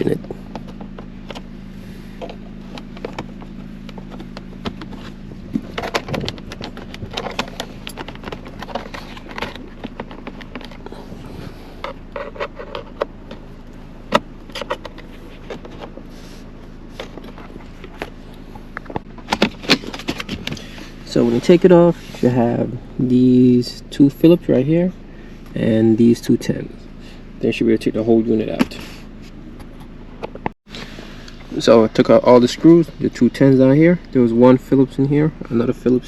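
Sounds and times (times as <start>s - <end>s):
steady low hum: 0.0s - 36.0s
plastic trim clicking and scraping: 3.9s - 10.9s.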